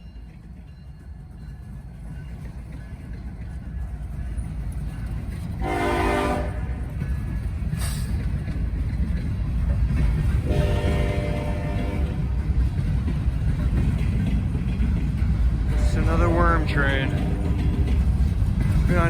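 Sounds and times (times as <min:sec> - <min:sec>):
diesel locomotive engine rumbling: 0:00.0 - 0:19.0
train air horn blasts: 0:05.6 - 0:06.8, 0:10.4 - 0:12.3.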